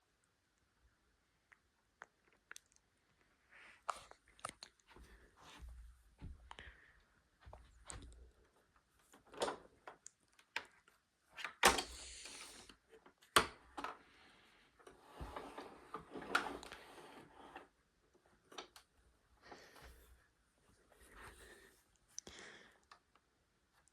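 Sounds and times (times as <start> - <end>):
rustling and scraping: 14.8 - 17.8.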